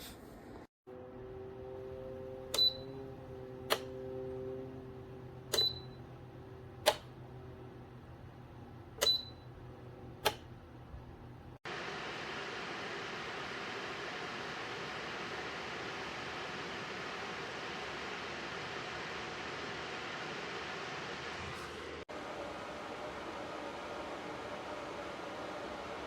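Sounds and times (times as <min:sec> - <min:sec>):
heater fan motor humming: 0:00.4 - 0:26.0
sharp clicks of heater: 0:03.7 - 0:03.9, 0:05.5 - 0:05.9, 0:06.8 - 0:07.1, 0:10.2 - 0:10.5.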